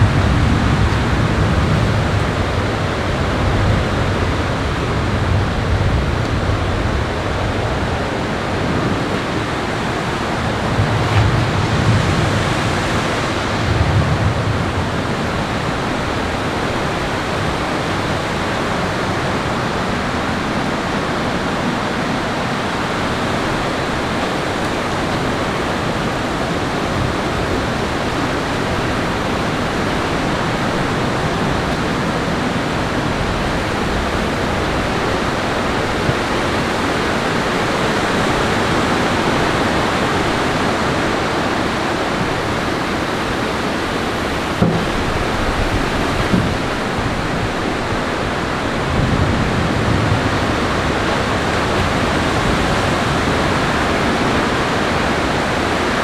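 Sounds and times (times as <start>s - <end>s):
low rumbles: 0.0s - 18.6s
heavy rain: 0.0s - 56.0s.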